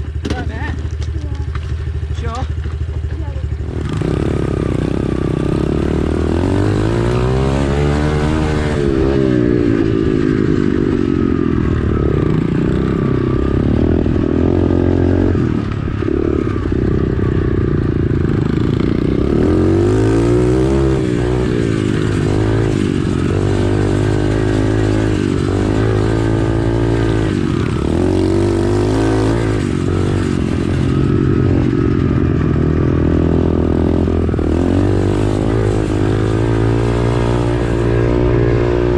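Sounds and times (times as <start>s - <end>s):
pit bike engine revving: 0.0s - 38.9s.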